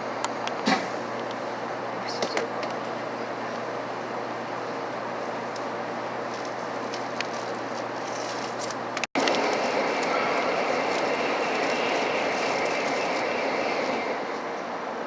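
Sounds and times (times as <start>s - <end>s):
train running rush: 8.8s - 15.0s.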